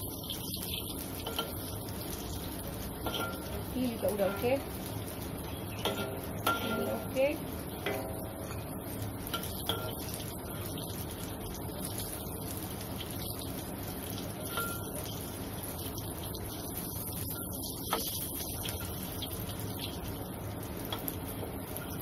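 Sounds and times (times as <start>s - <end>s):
food sizzling in hot oil: 0.0s - 22.0s
metal spatula clinking pan: 1.2s - 1.7s, 3.0s - 3.6s, 5.8s - 7.1s, 7.8s - 8.2s, 9.3s - 10.2s, 14.4s - 15.1s.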